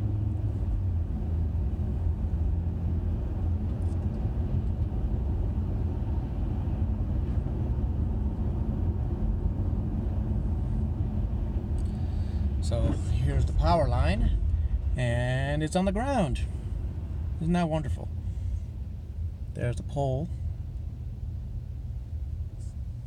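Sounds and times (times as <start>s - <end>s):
car engine rumble: 0.0s - 23.0s
road noise: 0.0s - 23.0s.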